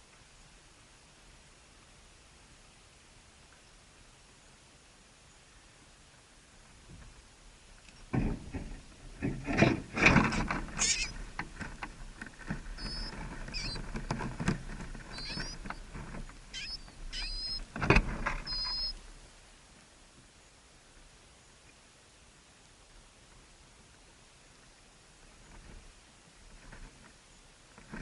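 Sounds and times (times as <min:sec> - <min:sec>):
rustling scratching and knocking: 0:08.1 - 0:18.9
small bird chirping: 0:10.8 - 0:11.2, 0:12.8 - 0:13.8, 0:15.1 - 0:15.9, 0:16.5 - 0:17.7, 0:18.4 - 0:19.0.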